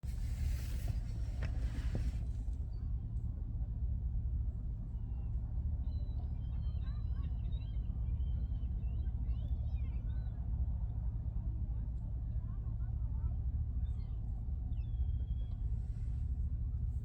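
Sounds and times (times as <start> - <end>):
steady low rumble: 0.0 - 4.9.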